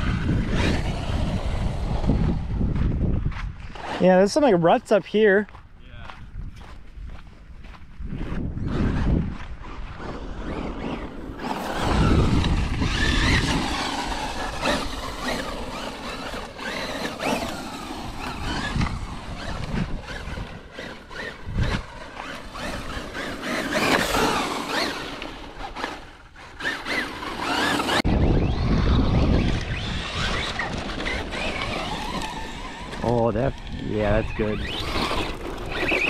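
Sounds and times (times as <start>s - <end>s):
rc truck motor whine: 0.0s - 3.0s, 8.3s - 36.0s
tyres on dirt: 0.0s - 36.0s.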